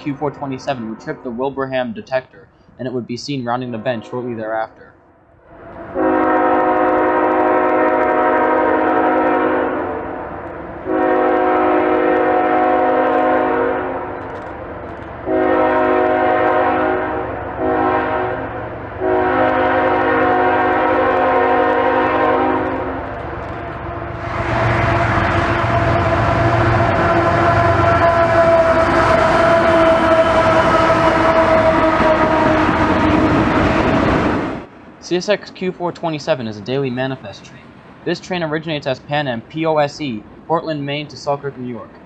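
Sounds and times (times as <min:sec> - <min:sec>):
diesel locomotive engines: 0:00.0 - 0:42.0
train rumble: 0:00.0 - 0:42.0
locomotive air horn blasts: 0:05.6 - 0:14.5, 0:15.2 - 0:34.7.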